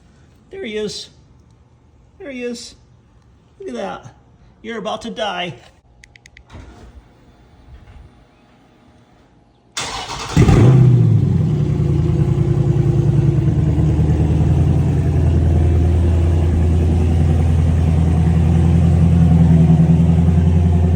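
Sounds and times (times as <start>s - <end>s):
engine starter cranking: 6.5s - 7.1s, 9.8s - 11.2s
engine pulsing idle: 9.8s - 20.9s.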